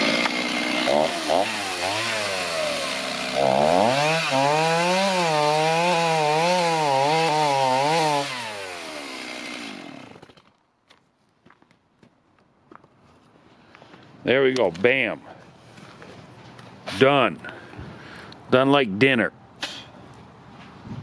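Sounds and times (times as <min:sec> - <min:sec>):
electric chainsaw cutting log: 0:00.0 - 0:10.5.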